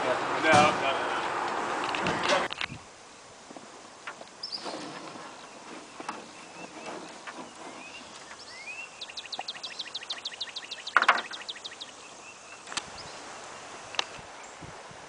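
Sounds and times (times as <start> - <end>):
songbird chirping: 4.0 - 15.0.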